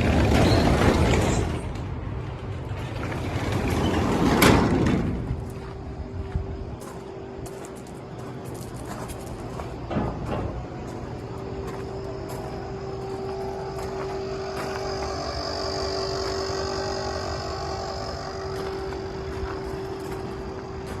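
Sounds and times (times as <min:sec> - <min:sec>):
constant whine: 0:00.0 - 0:21.0
diesel truck engine running: 0:00.0 - 0:21.0.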